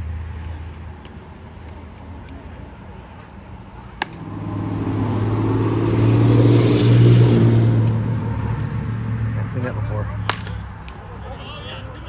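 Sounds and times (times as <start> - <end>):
sharp crack: 4.0 - 4.5, 10.2 - 10.6
vehicle engine passing by: 4.0 - 10.8.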